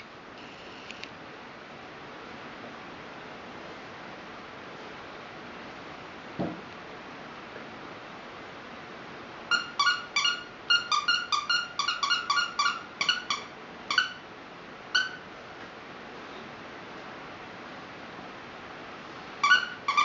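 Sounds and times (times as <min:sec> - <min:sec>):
squeaky toy squeaks: 0:09.5 - 0:14.2, 0:15.0 - 0:15.2, 0:19.4 - 0:20.0.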